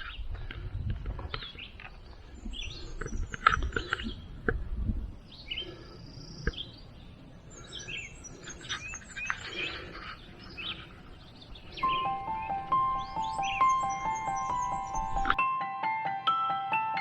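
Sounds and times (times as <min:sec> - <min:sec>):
low rumble on microphone: 0:00.0 - 0:15.4
wild birds chirping: 0:00.0 - 0:15.4.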